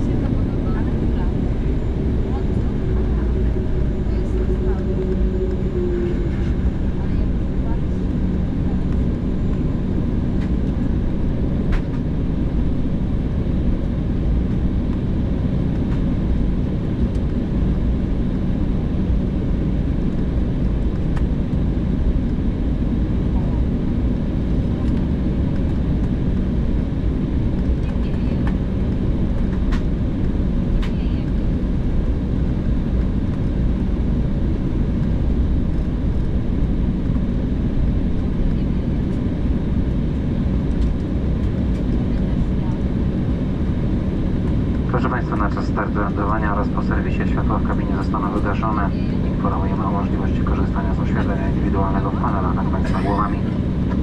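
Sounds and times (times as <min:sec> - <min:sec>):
faint constant hum: 0:00.0 - 0:54.0
jet engines rumbling in cabin: 0:00.0 - 0:54.0.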